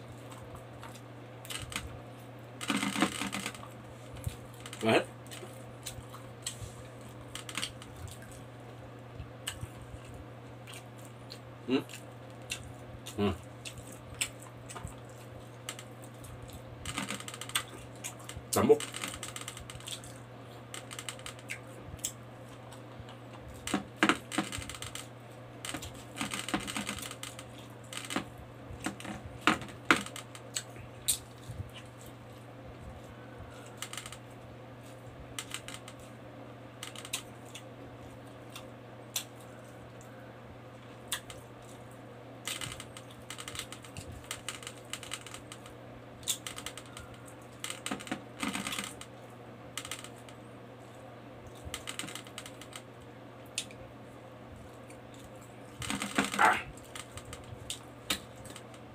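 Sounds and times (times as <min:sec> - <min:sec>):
steady low hum: 0:00.0 - 0:58.9
chewing and lip smacking: 0:09.2 - 0:16.7.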